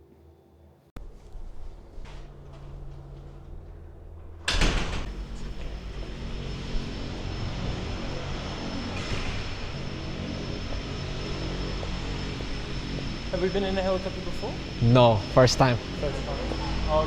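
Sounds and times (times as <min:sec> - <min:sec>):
door opening clunk: 0:01.0 - 0:07.4
helicopter turbine engine running: 0:01.0 - 0:17.0.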